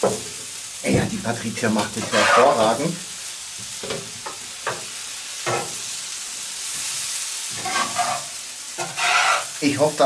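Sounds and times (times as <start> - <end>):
food sizzling in a pan: 0.0 - 10.0
metal turner scraping a pan: 1.8 - 2.8, 7.5 - 9.6.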